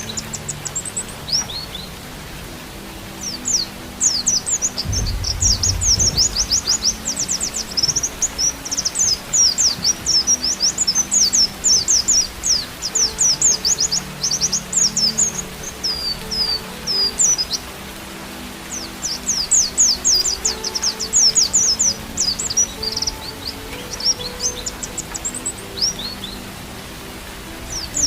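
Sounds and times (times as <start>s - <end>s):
brief low rumble: 4.9s - 6.8s.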